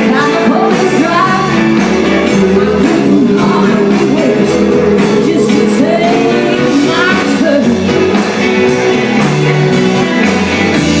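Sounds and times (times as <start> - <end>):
person singing: 0.0 - 8.3
live rock band playing: 0.0 - 11.0.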